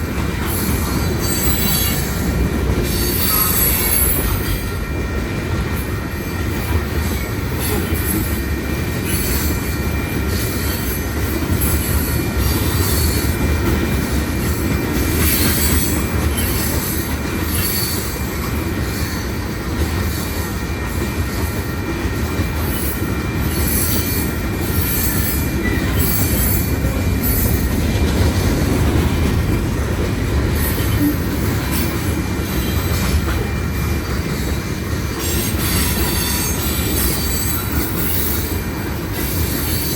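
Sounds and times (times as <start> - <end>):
freight train wheels rumbling: 0.0 - 39.9
high-pitched wheel squeal: 3.0 - 4.3.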